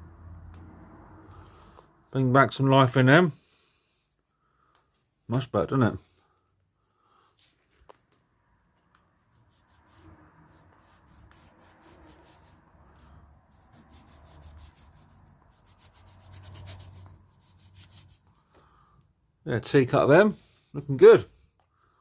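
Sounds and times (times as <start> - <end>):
hand scrubbing plastic: 9.0 - 18.6.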